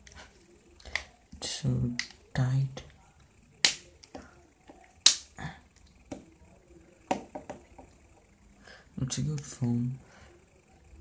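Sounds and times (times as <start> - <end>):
loud plastic snap: 3.6 - 3.9, 5.0 - 5.3.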